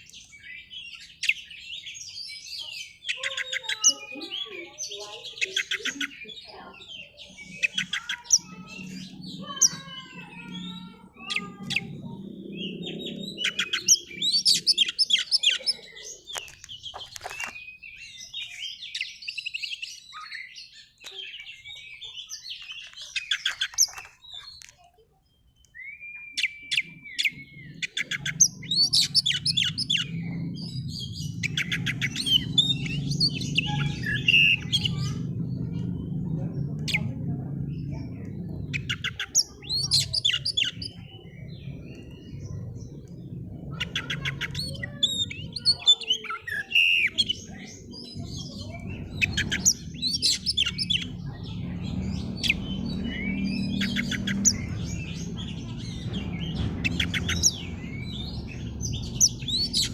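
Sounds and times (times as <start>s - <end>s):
bird singing: 0.0s - 59.9s
low steady rumble: 28.5s - 45.6s, 47.1s - 59.9s.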